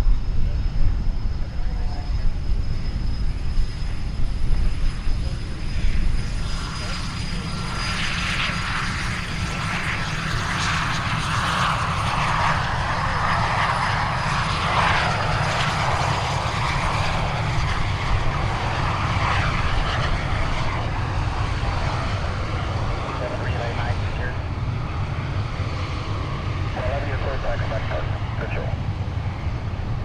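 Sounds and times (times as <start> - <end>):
jet engine noise: 0.0 - 30.0.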